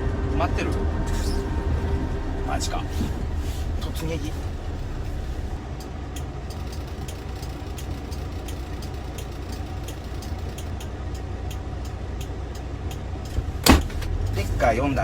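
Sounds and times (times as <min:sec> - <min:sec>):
vehicle engine rumbling: 0:00.0 - 0:15.0
faint regular ticking: 0:03.9 - 0:13.6.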